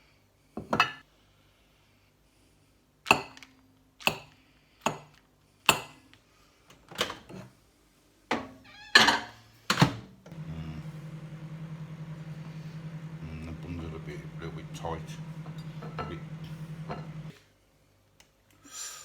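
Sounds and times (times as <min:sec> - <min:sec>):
low appliance hum: 0:10.2 - 0:17.5
plates and utensils clinking: 0:15.5 - 0:17.3.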